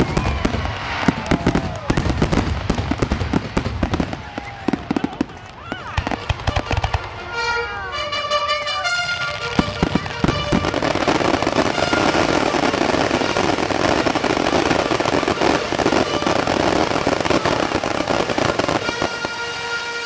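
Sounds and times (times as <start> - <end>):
fireworks bangs: 0.0 - 20.0
fireworks crackling: 0.0 - 20.0.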